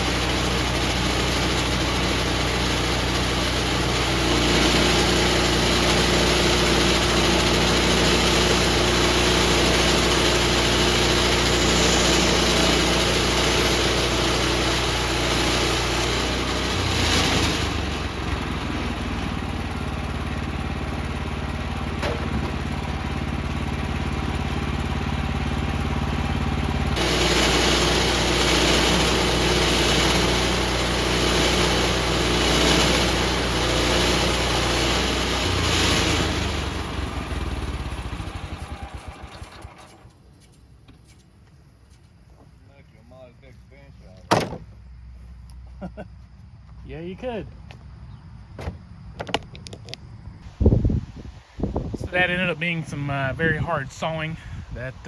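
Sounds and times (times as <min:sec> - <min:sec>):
saw blade cutting log: 0:00.0 - 0:18.0, 0:27.0 - 0:36.8
gas engine running: 0:00.0 - 0:40.2, 0:49.2 - 0:55.0.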